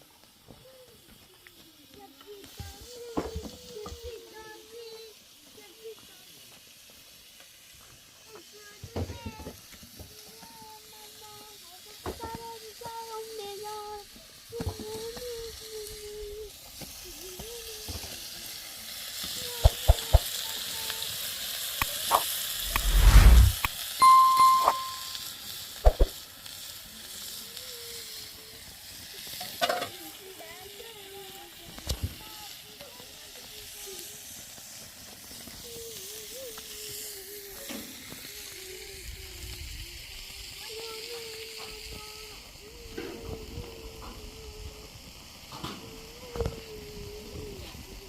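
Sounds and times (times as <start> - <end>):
sizzling hiss: 0.0 - 48.0
loud low rumble: 22.6 - 23.6
faint wavering tone: 24.0 - 25.2
child humming a tune: 40.6 - 44.9, 45.8 - 48.0.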